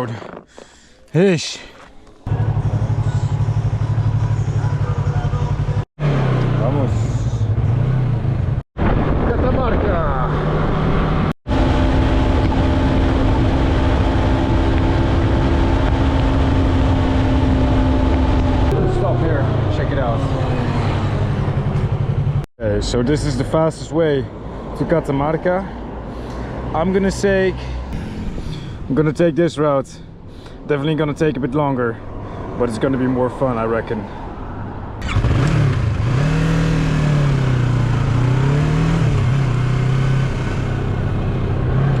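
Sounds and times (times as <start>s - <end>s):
motorcycle engine cruising: 2.0s - 8.6s, 10.2s - 22.5s, 35.0s - 42.0s.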